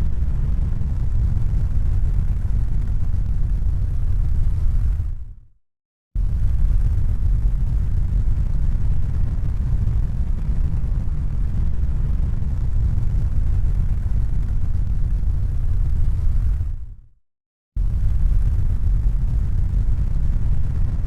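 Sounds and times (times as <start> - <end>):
low rumbling noise: 0.0 - 5.4, 6.2 - 17.0, 17.8 - 21.0.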